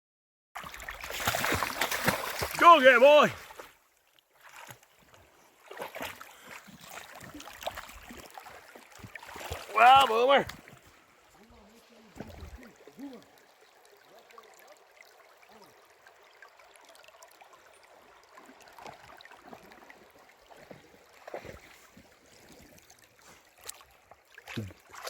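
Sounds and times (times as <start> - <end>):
creek water trickling: 0.6 - 25.0
splash or knock: 0.7 - 2.6.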